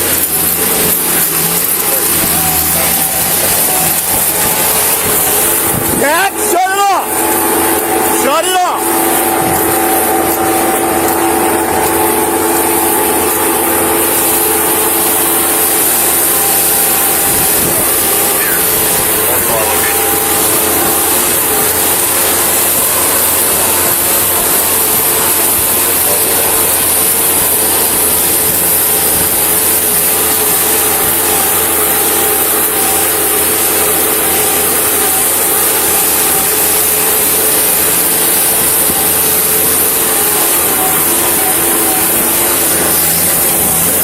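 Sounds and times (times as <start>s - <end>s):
constant hiss: 0.0s - 7.2s
engine running: 0.0s - 44.0s.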